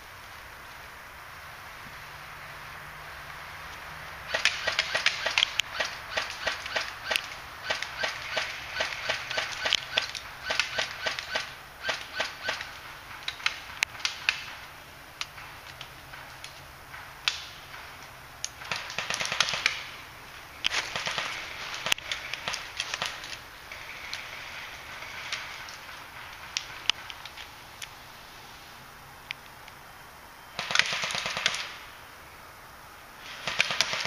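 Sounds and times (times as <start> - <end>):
sharp twig cracks: 4.3 - 14.6, 15.2 - 19.9.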